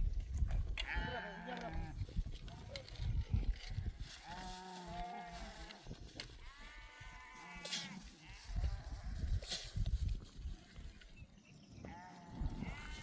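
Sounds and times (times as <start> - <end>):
livestock bleating: 0.8 - 9.4, 11.8 - 13.0.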